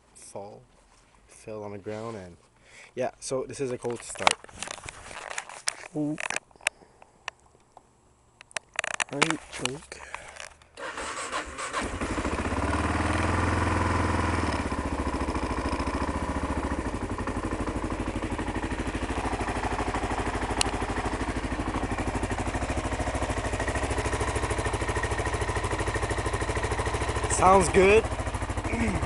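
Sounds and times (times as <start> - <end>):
motorcycle engine starting and idling: 8.6 - 29.0.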